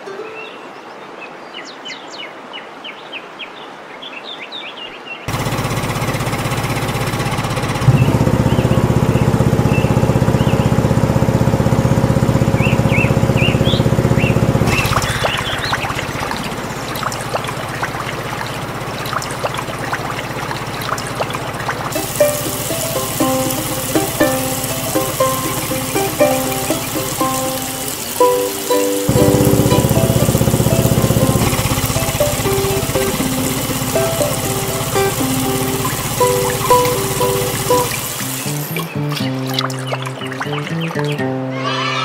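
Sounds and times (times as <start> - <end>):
water pump humming: 5.3 - 41.0
water splashing and trickling: 5.3 - 41.4
birds chirping: 7.8 - 10.9, 12.4 - 42.0
hiss: 14.7 - 17.2, 21.9 - 38.8.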